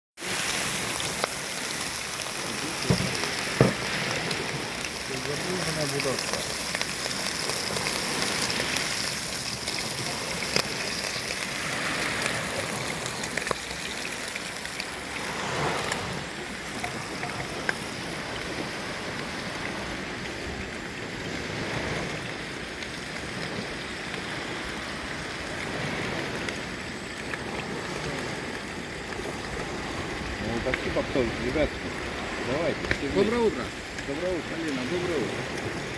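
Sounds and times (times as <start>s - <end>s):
sea waves washing on shore: 0.2s - 35.9s.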